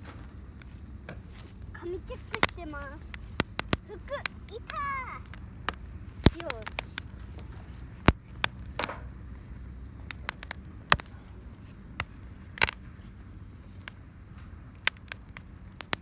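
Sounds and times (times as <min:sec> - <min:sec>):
low steady rumble: 0:00.0 - 0:16.0
wood fire crackling and popping: 0:00.0 - 0:16.0.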